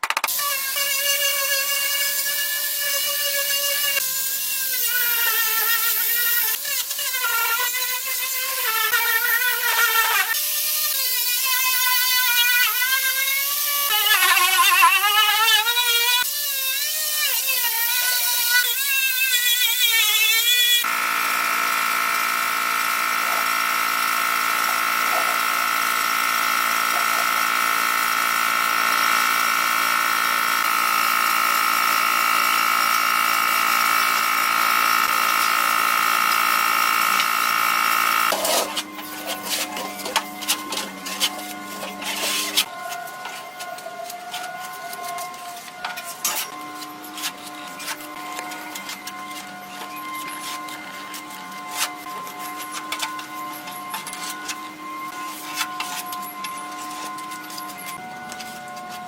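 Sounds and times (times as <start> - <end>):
power tool motor whining: 0.3 - 59.0.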